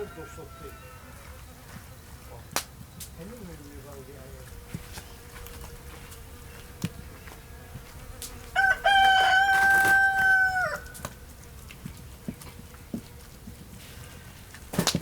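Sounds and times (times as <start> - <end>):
rooster crowing: 0.0 - 1.5, 8.5 - 11.1.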